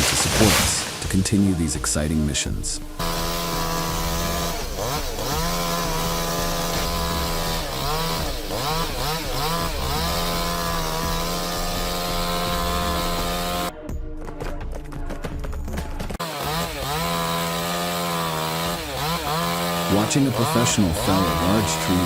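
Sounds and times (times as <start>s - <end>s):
chainsaw running at high revs: 2.9s - 13.7s, 16.2s - 22.0s.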